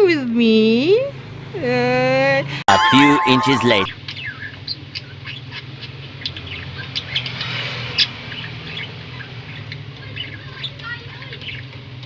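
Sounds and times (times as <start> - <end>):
small birds chirping: 2.8 - 11.8.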